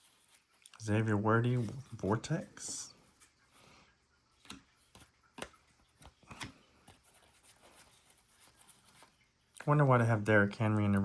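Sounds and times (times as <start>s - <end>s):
cards flipped by hand: 4.4s - 9.2s.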